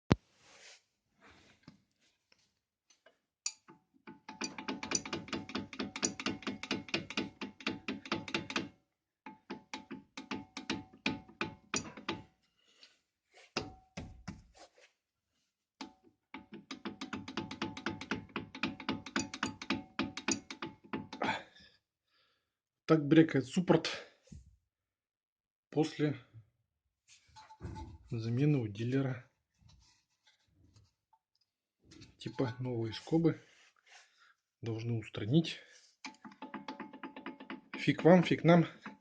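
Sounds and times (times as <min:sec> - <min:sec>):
brake calipers rattling: 0:04.1 - 0:08.6, 0:09.3 - 0:12.3, 0:36.0 - 0:39.0.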